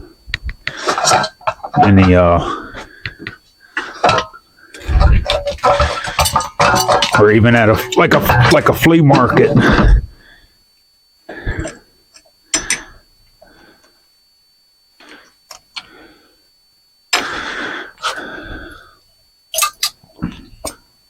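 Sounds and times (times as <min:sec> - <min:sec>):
rasping mechanical sound: 0:03.1 - 0:10.2
metal parts knocking and clicking: 0:05.0 - 0:09.9, 0:19.5 - 0:20.0.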